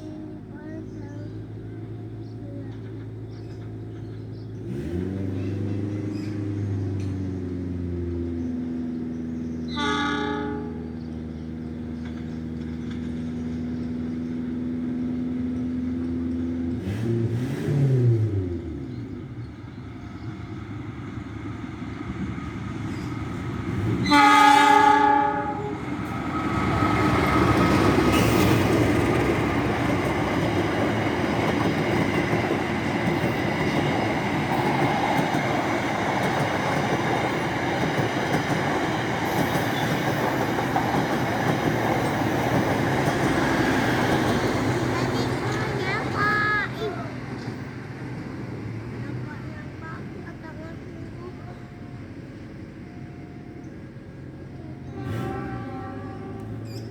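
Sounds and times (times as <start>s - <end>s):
locomotive engine humming: 0.0s - 17.4s, 18.2s - 56.9s
wheel and rail noise: 0.0s - 56.9s
train horn blast: 9.7s - 11.1s, 23.9s - 25.9s, 54.8s - 56.9s.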